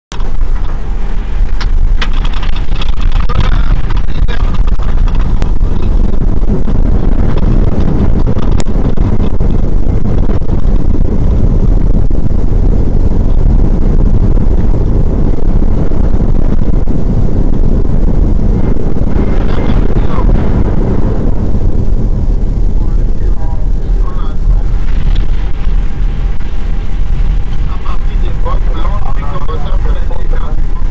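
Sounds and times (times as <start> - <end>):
rumble of airflow and engines: 0.1 - 30.9.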